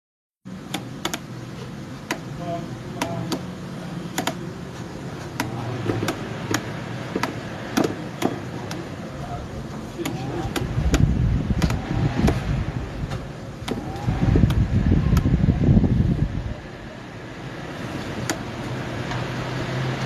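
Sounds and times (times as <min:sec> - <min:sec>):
electric fan running: 0:00.5 - 0:20.0
fan clicking: 0:00.6 - 0:01.4, 0:02.0 - 0:04.6, 0:05.2 - 0:16.4, 0:17.8 - 0:20.0
low fluttering rumble: 0:10.4 - 0:19.6.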